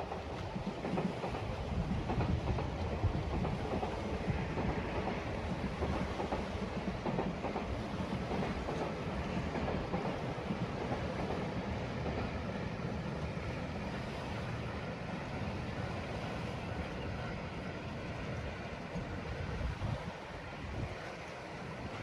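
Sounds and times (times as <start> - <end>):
freight train rumbling on rails: 0.0 - 22.0.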